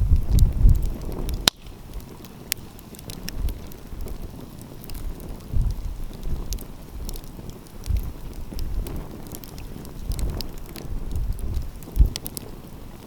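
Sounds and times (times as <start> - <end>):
wind gusts on microphone: 0.0 - 2.2, 3.0 - 13.0
wood fire crackling and popping: 0.0 - 13.0.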